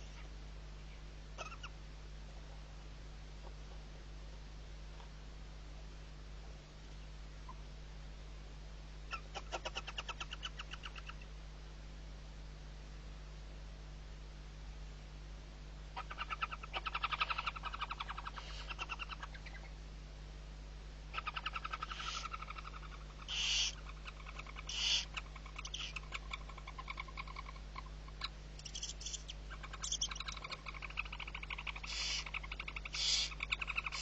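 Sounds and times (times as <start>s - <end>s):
owl chick chattering twitter: 1.4s - 1.8s, 9.1s - 11.3s, 16.0s - 19.7s, 21.1s - 34.0s
owl chick hoarse hisses: 18.2s - 19.0s, 21.7s - 22.4s, 23.2s - 23.8s, 24.6s - 26.0s, 31.4s - 34.0s.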